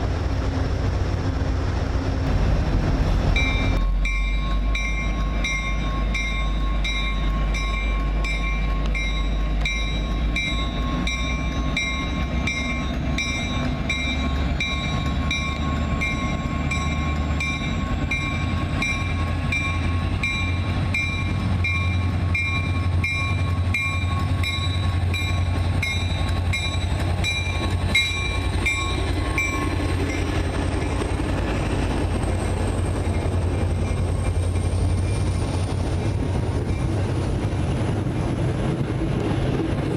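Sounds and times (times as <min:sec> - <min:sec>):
locomotive engine rumbling: 0:00.0 - 0:39.9
train bell ringing: 0:03.3 - 0:31.2.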